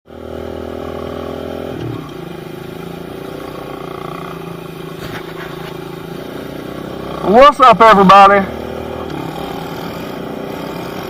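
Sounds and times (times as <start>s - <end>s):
small motorbike engine running: 0.1s - 11.0s.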